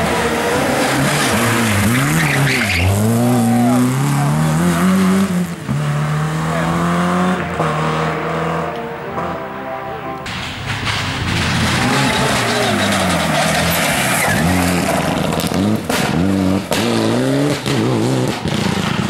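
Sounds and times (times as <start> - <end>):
rally car engine revving: 0.0 - 9.5, 10.3 - 19.0
tyre squeal: 1.1 - 3.8, 11.3 - 15.1.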